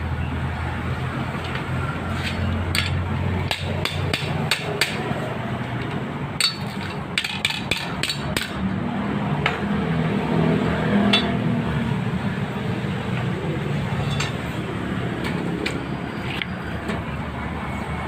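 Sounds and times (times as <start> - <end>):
hammer strikes: 2.2 - 5.2, 6.4 - 8.6.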